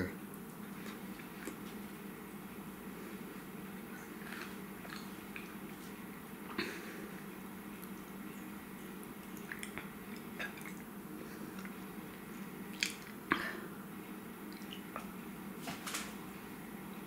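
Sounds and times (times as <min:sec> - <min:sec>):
person chewing candy: 0:04.0 - 0:05.8, 0:09.2 - 0:13.2.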